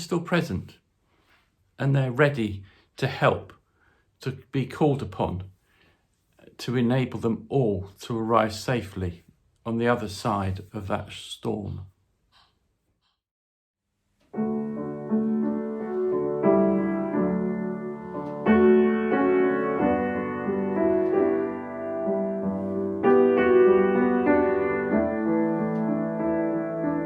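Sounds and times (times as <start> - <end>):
gentle piano chords: 14.3 - 27.0.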